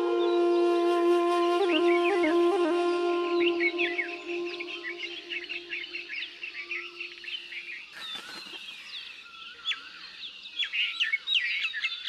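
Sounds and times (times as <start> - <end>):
small birds chirping and twittering: 3.3 - 12.0.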